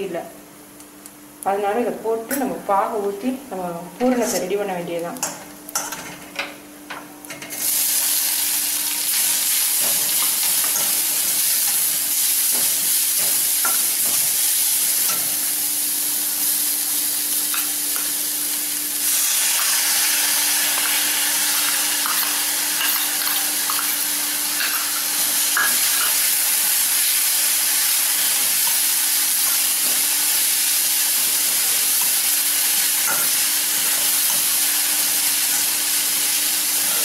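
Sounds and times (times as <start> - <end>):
metal spatula scraping a pan: 4.0 - 4.6
food sizzling in a pan: 7.2 - 37.0.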